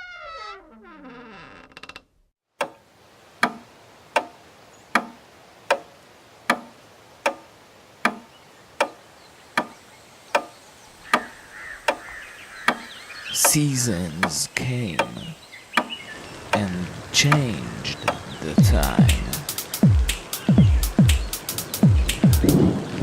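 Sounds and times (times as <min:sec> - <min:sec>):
clock ticking: 0:03.4 - 0:04.4, 0:05.0 - 0:05.9, 0:06.5 - 0:09.0, 0:11.1 - 0:11.3, 0:12.7 - 0:13.6, 0:14.2 - 0:15.9, 0:17.3 - 0:17.5, 0:18.1 - 0:22.6.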